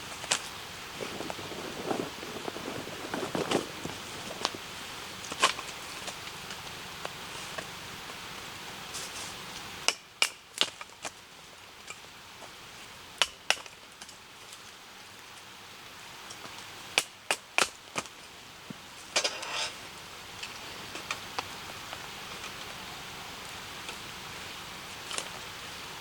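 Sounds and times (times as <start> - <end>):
steady hiss: 0.0 - 26.0
scraping crunch: 0.1 - 4.7, 19.0 - 22.7
firewood snapping: 9.9 - 11.2, 13.2 - 14.2, 16.4 - 18.2.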